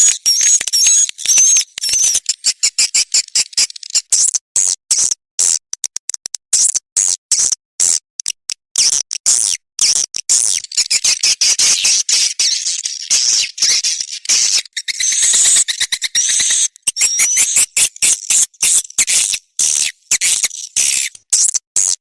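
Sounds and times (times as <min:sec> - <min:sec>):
swiftlets twittering: 0:00.0 - 0:04.0, 0:10.5 - 0:21.2.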